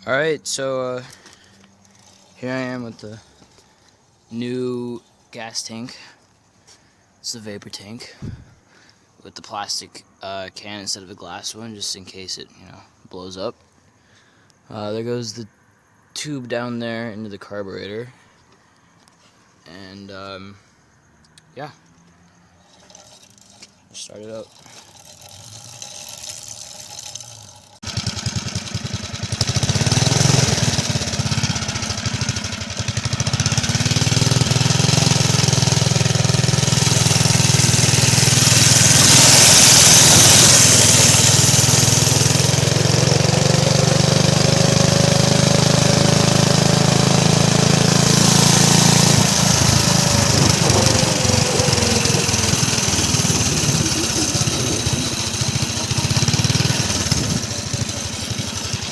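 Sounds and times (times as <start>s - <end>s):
small gasoline engine running: 0.9s - 4.0s, 22.6s - 58.9s.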